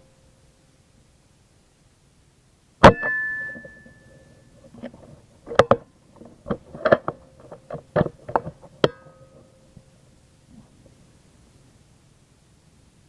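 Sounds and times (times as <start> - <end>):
gunshot: 2.8 - 3.2
gun clicks and knocks: 4.8 - 9.0.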